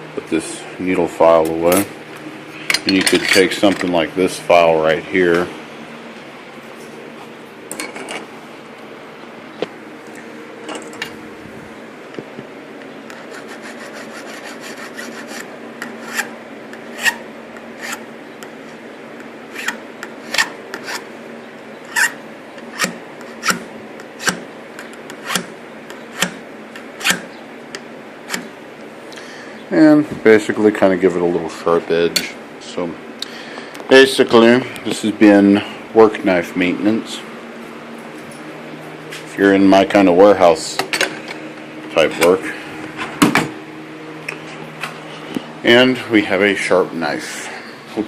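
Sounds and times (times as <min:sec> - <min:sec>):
file rasping on knife edge: 0:13.1 - 0:16.3, 0:17.8 - 0:18.0, 0:19.5 - 0:21.0, 0:21.9 - 0:23.6.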